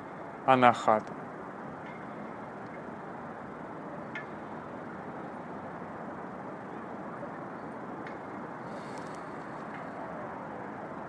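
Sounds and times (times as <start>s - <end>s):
background hiss: 8.4s - 9.8s.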